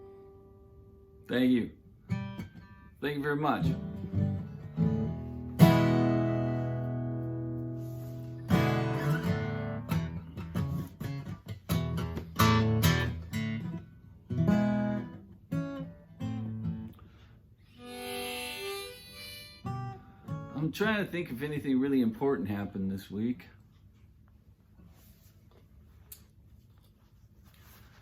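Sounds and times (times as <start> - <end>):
acoustic guitar strumming and picking: 0.0 - 1.2, 2.0 - 21.6.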